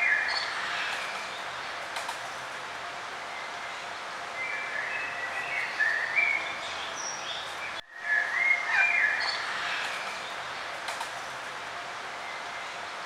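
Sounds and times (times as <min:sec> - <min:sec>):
songbirds singing: 0:03.3 - 0:10.5.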